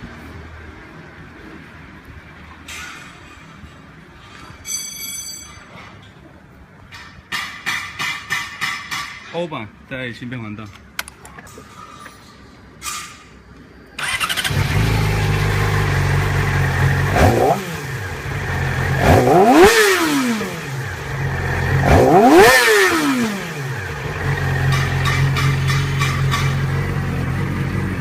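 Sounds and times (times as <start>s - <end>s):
motorcycle engine idling: 14.0s - 17.2s, 23.7s - 28.0s
motorcycle engine revving: 14.0s - 28.0s.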